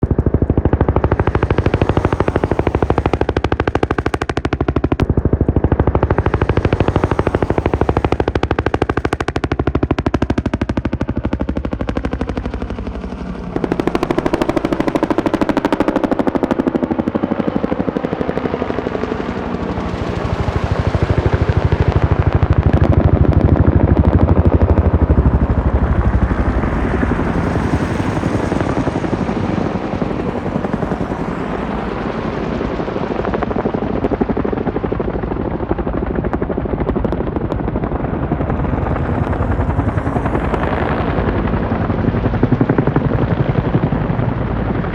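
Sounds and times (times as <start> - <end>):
helicopter rotor blades beating: 0.0 - 44.9.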